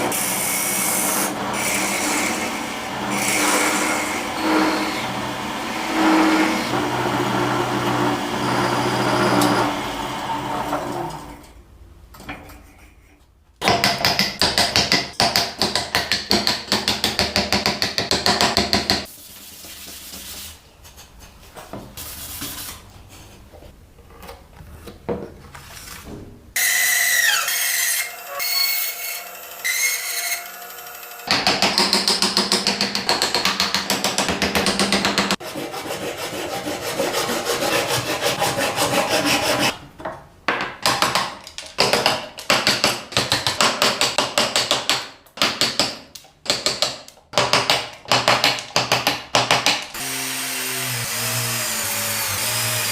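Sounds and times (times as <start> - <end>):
hand tool rasping wood: 31.7 - 39.8.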